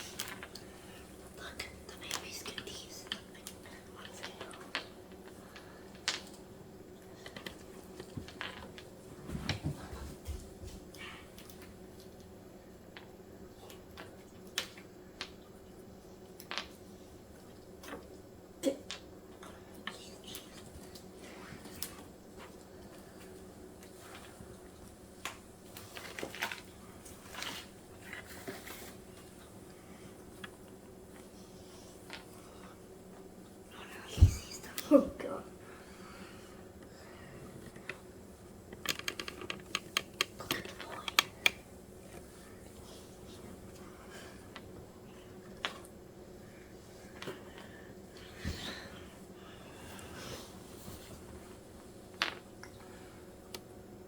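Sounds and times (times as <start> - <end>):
steady low hum: 0.0 - 54.0
light clicks and taps: 38.7 - 42.3.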